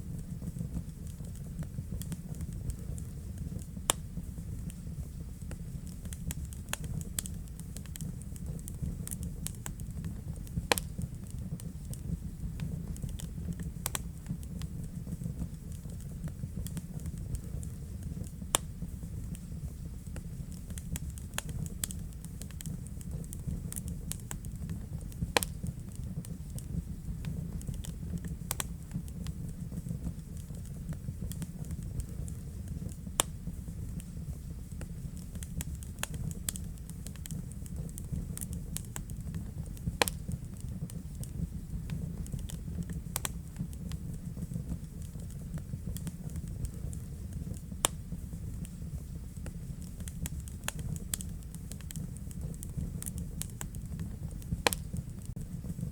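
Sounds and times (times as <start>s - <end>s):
fire crackling and popping: 0.0s - 55.9s
fire rumbling: 0.0s - 55.9s.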